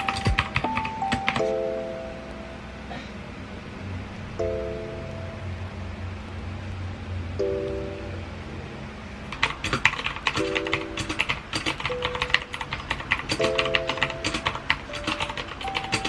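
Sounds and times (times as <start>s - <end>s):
keyboard typing: 0.0s - 2.4s, 9.3s - 16.0s.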